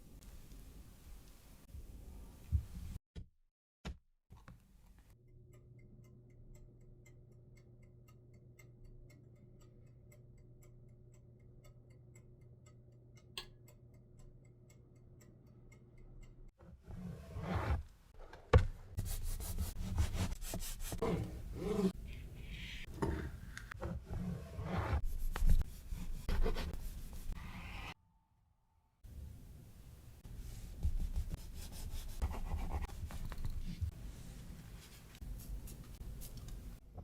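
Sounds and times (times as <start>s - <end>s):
rubbing and scraping: 16.8s - 28.0s.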